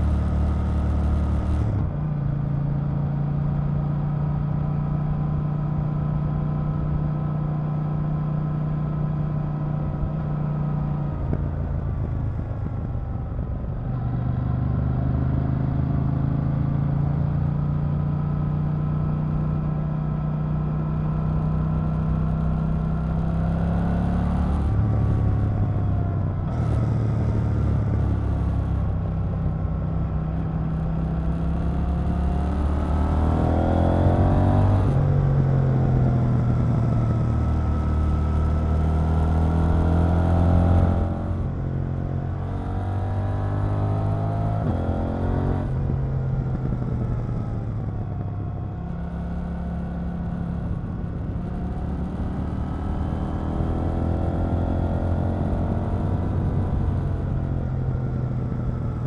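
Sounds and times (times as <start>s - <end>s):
motorcycle engine revving: 21.1s - 59.0s.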